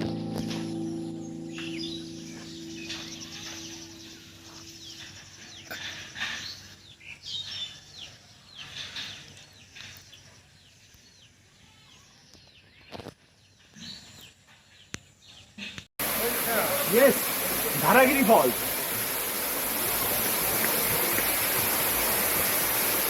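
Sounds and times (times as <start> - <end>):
background music: 0.0 - 5.5
birds chirping: 0.0 - 23.0.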